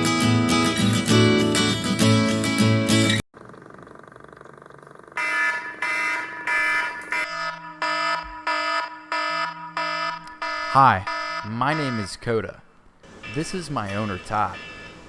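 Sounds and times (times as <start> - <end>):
faint hum: 3.4 - 6.5
alarm clock beeping: 5.2 - 12.4, 13.2 - 15.0.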